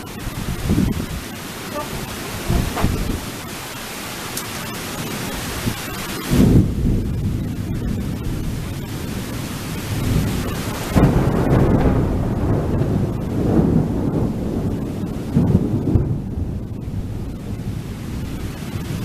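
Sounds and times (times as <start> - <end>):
low rumble of thunder: 0.0 - 3.5, 5.2 - 19.0
rain hissing: 0.0 - 19.0.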